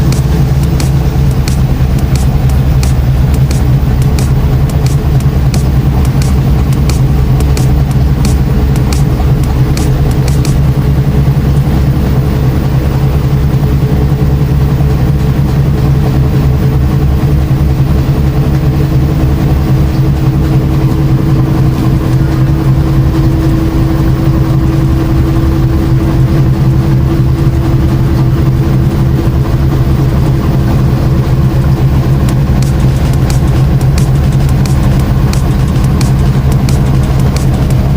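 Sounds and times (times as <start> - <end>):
washing machine motor hum: 0.0 - 37.9.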